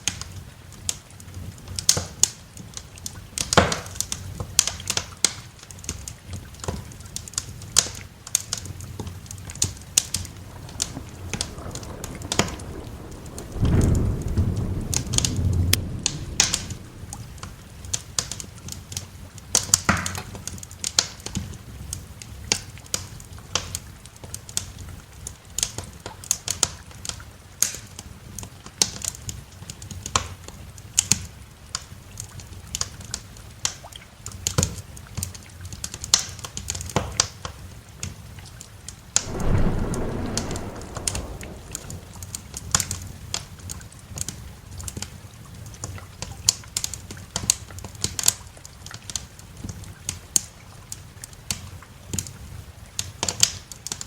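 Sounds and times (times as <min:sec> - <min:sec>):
steady rain: 0:00.0 - 0:29.6, 0:39.2 - 0:54.0
wood fire crackling: 0:09.0 - 0:18.0, 0:39.2 - 0:42.6
thunder rumbling: 0:09.5 - 0:18.0, 0:39.2 - 0:43.0.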